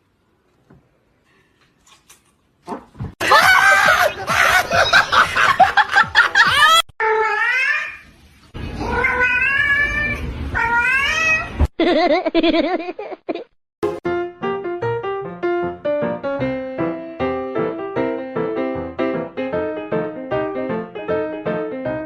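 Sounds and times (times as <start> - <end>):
cat meows: 8.8 - 11.6
cats yowling: 8.8 - 11.6.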